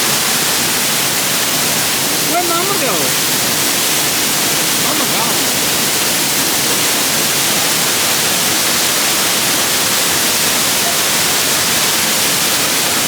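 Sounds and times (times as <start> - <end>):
waterfall hiss: 0.0 - 13.0.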